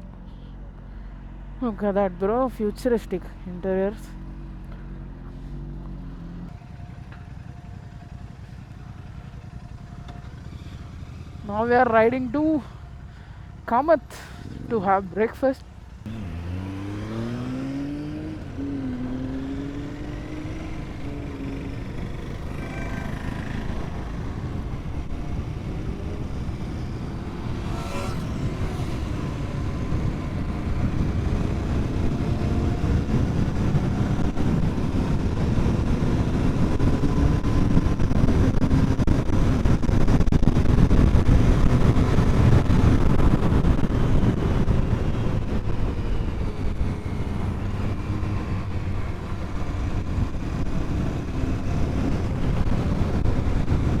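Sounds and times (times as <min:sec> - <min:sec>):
motorcycle engine running: 0:00.0 - 0:54.0
wind rush on microphone: 0:19.8 - 0:54.0.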